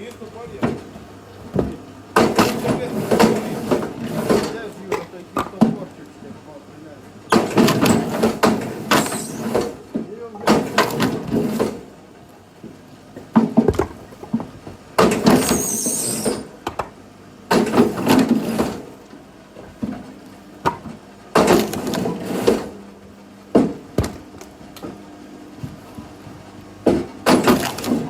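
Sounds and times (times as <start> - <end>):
firewood being chopped: 13.3 - 15.5, 23.5 - 25.0.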